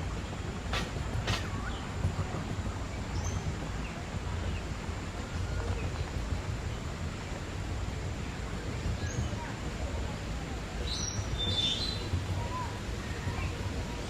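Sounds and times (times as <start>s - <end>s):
steady low rumble: 0.0s - 14.0s
faint bird chirps: 10.8s - 12.7s.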